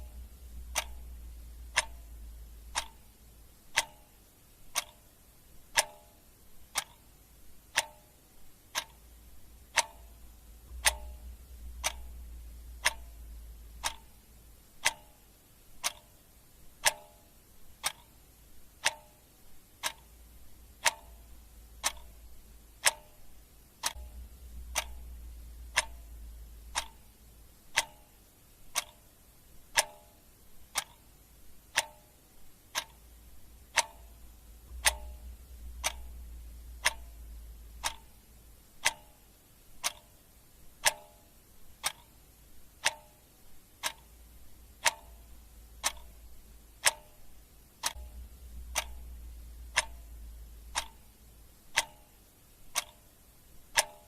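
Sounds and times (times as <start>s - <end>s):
clock ticking: 0.0s - 54.0s
faint low hum: 0.0s - 54.0s.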